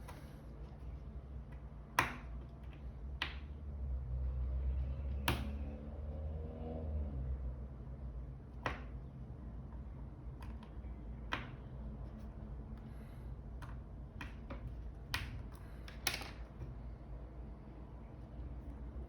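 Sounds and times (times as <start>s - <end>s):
low steady hum: 6.9s - 19.0s.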